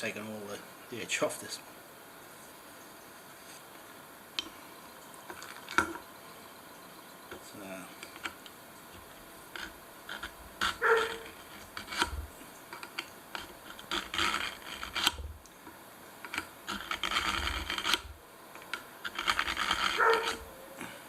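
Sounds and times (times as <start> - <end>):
knife blade rasping through sharpener: 19.1 - 20.5.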